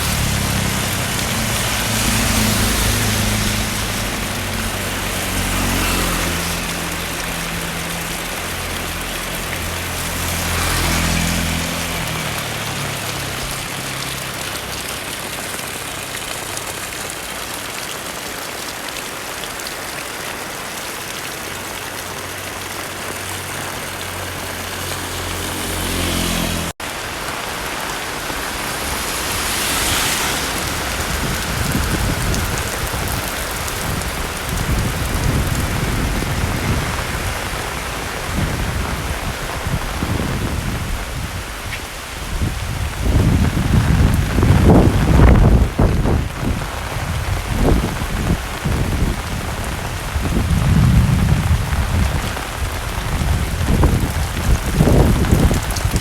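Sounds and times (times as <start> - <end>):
low engine hum: 0.0 - 17.7
heavy rain pattering: 0.0 - 56.0.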